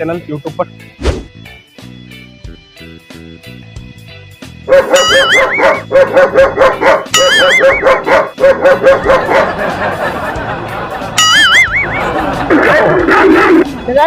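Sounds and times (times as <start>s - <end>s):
background music: 0.0s - 14.0s
rapid dog barks: 4.7s - 9.6s, 12.6s - 13.8s.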